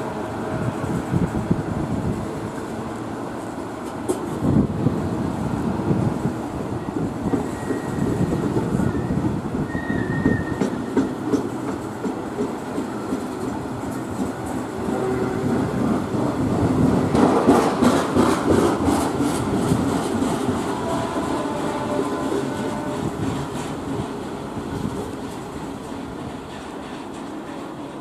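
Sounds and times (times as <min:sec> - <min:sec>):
faint high wheel squeal: 0:06.9 - 0:11.0.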